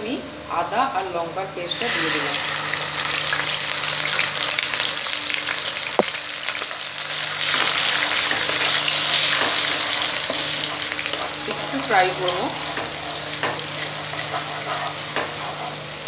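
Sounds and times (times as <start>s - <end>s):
paste sizzling in hot oil: 1.7s - 16.0s
wooden spatula scraping a pan: 8.4s - 16.0s.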